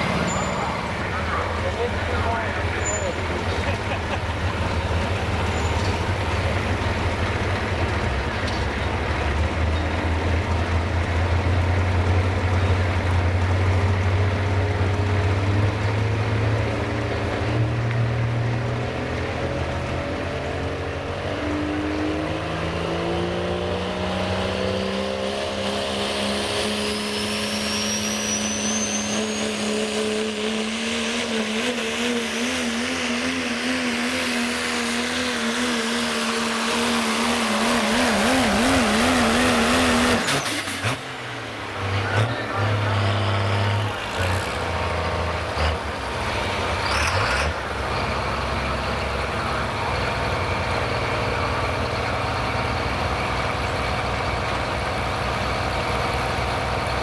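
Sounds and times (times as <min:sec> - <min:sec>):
turbocharger whistle: 0:00.0 - 0:03.3, 0:26.0 - 0:31.0
diesel pickup engine revving: 0:00.0 - 0:57.0.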